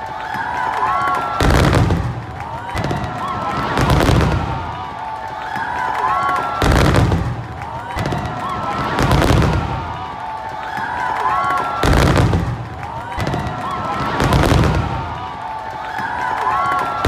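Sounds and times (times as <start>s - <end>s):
crowd voices: 0.0s - 17.0s
fireworks crackling: 1.1s - 17.0s
fireworks booming: 1.4s - 4.8s, 6.6s - 10.1s, 11.8s - 15.4s.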